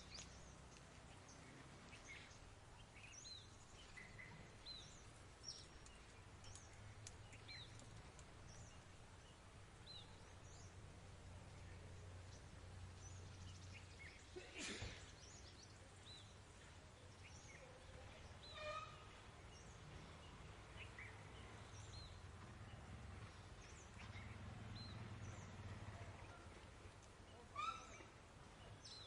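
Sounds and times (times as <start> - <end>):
distant birds chirping: 0.0 - 29.0
loud bird call: 27.4 - 28.1.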